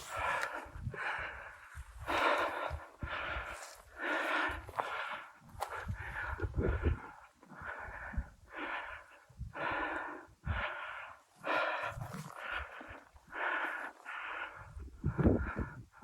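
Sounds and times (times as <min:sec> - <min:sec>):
person breathing hard: 0:00.0 - 0:16.0.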